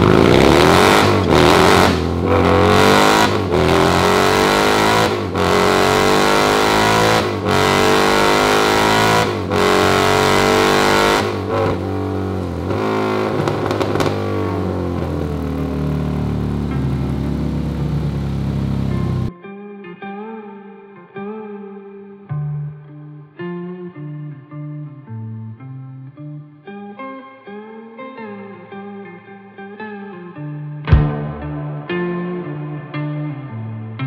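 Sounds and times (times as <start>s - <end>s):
motorcycle engine revving: 0.0s - 19.3s, 30.9s - 32.6s.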